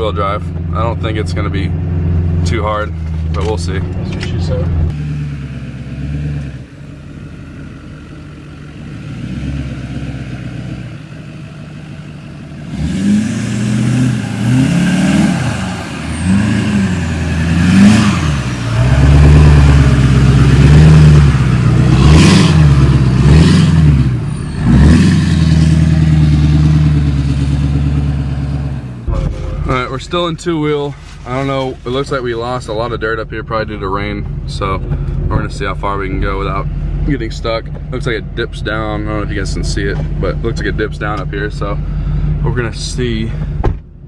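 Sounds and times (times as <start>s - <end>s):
diesel truck engine revving: 0.0s - 29.1s.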